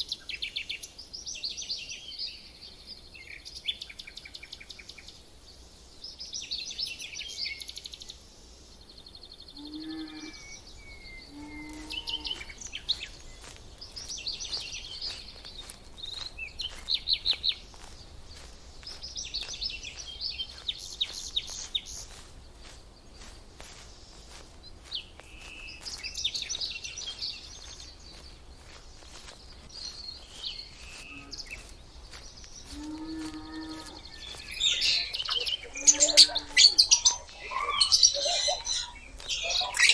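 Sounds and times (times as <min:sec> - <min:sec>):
small birds chirping and trilling: 0:00.0 - 0:39.9
lower-pitched bird call: 0:09.6 - 0:12.6.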